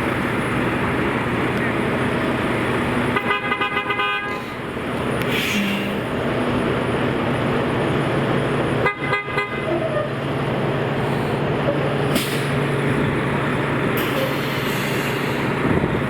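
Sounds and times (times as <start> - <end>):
street traffic noise: 0.0 - 16.0
vehicle horn honking: 3.2 - 4.4, 8.8 - 9.8.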